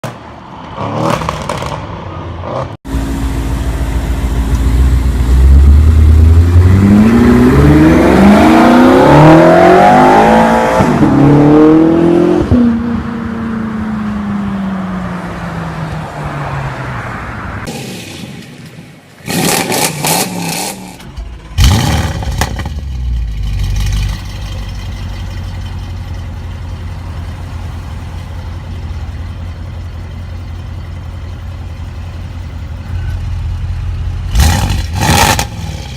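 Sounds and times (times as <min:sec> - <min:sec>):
car engine accelerating hard: 0:02.5 - 0:12.8
car engine idling: 0:02.9 - 0:06.5, 0:20.8 - 0:34.4.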